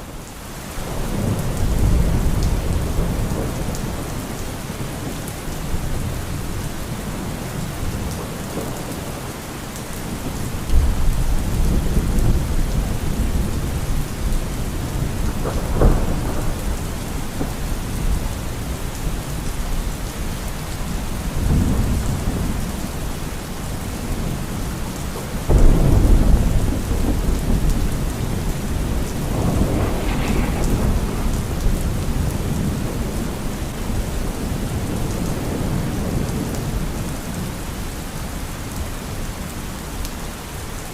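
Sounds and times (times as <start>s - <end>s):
steady rain: 0.0s - 40.9s
thunder rolling and cracking: 0.9s - 4.8s, 10.1s - 19.9s, 25.4s - 37.4s.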